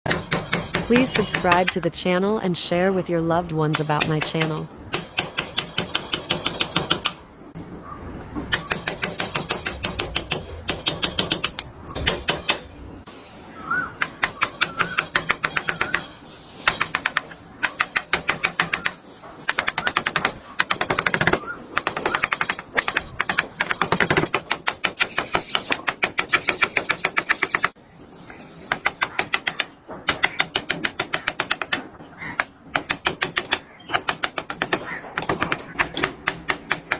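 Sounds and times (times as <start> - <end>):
sharp wooden tapping: 8.5 - 12.7, 16.6 - 36.9.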